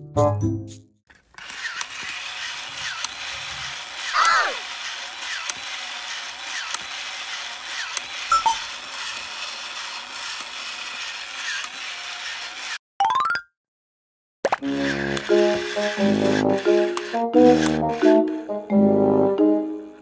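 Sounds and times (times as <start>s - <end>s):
mechanical clicking and ratcheting: 1.2s - 12.8s.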